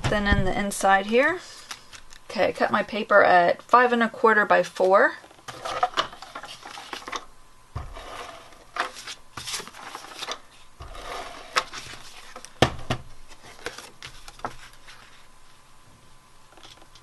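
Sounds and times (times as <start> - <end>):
paper rustling and sliding: 5.5 - 7.2, 7.8 - 12.6, 13.3 - 15.3.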